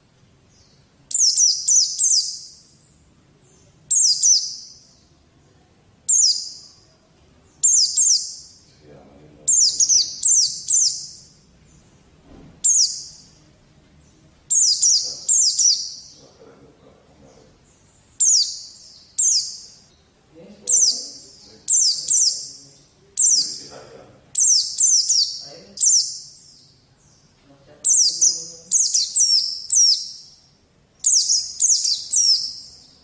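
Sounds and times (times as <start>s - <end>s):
bird high descending chirps: 1.1s - 2.8s, 9.5s - 11.4s, 12.6s - 13.4s, 14.5s - 16.3s, 18.2s - 19.9s, 27.9s - 30.4s, 31.0s - 33.0s.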